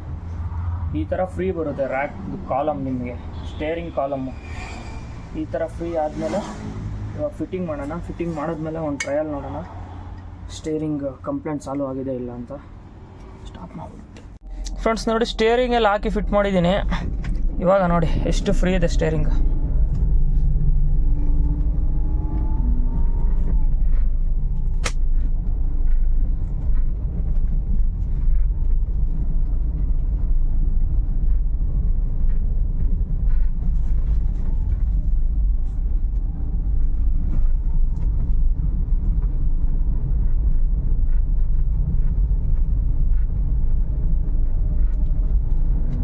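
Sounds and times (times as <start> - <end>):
car engine low rumble: 0.0 - 46.0
sharp click: 24.8 - 25.0.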